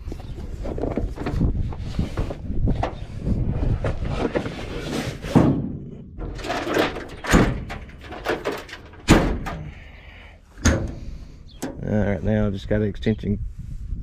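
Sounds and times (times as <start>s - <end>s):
metal doors opening and shutting: 4.3s - 12.0s
sharp metal bangs: 5.4s - 9.7s.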